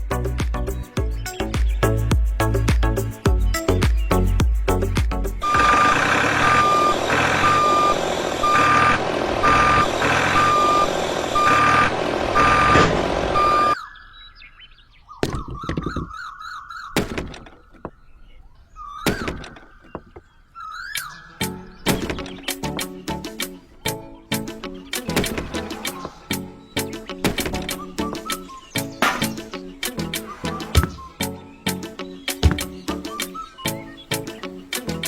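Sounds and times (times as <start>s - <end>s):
electronic beeping: 5.4s - 13.8s, 30.2s - 31.2s.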